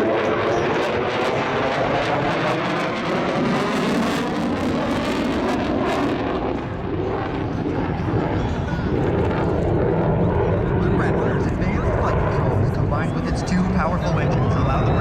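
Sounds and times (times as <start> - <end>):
fighter jet engines roaring: 0.0 - 15.0.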